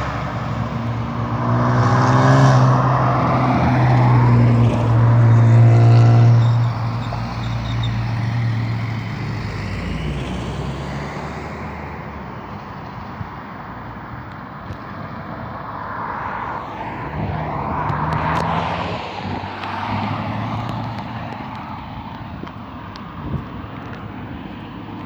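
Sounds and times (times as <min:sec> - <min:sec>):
bus diesel engine accelerating: 0:00.0 - 0:14.6.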